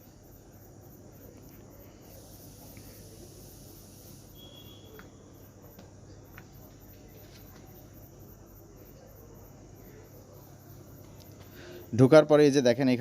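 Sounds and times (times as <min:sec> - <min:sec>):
steady low hum: 0:00.0 - 0:12.3
high chirping: 0:03.5 - 0:05.2.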